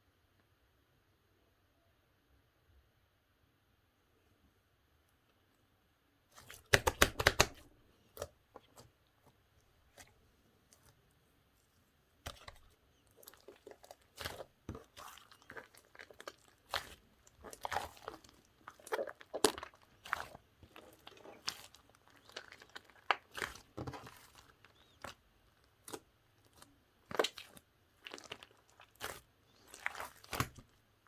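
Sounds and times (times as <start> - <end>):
slime crackling and popping: 6.4 - 7.6, 12.3 - 30.8.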